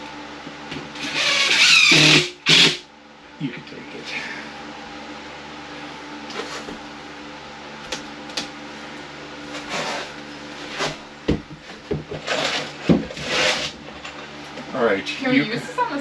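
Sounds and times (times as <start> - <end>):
drywall knocking and scraping: 9.6 - 13.8.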